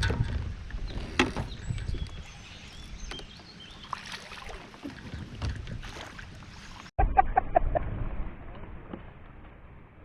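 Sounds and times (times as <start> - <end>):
wind buffeting microphone: 0.0 - 3.8.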